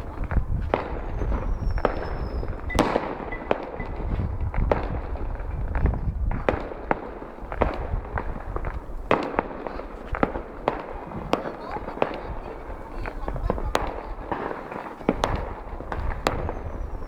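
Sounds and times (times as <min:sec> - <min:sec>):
fireworks bangs: 0:00.0 - 0:17.0
faint falling whistle: 0:01.1 - 0:03.4.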